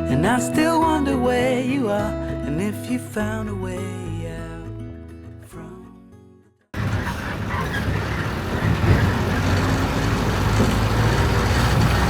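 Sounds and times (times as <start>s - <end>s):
vehicle engine running: 6.8s - 12.0s.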